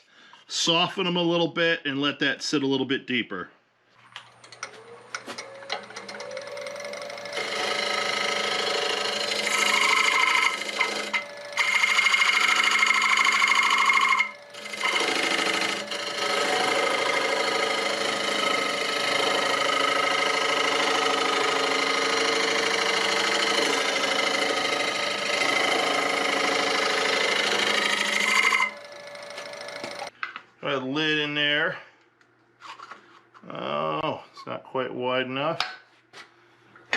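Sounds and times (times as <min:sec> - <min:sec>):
wood lathe turning wood: 0:04.4 - 0:30.1.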